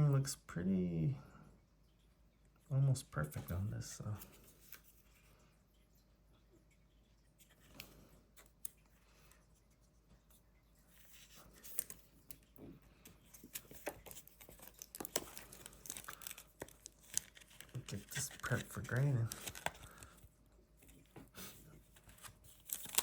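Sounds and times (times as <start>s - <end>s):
trading cards rustling: 10.9s - 23.0s.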